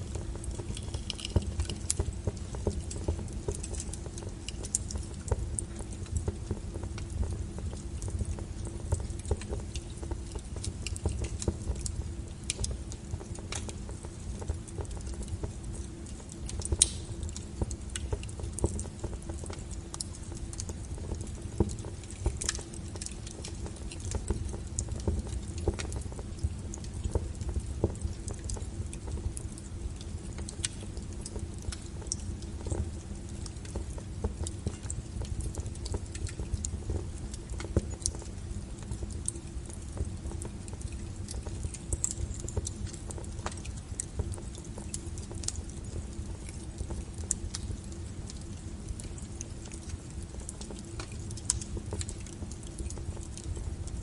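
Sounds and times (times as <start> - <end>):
low rumble of flames: 0.0 - 54.0
wood fire crackling and popping: 0.0 - 54.0.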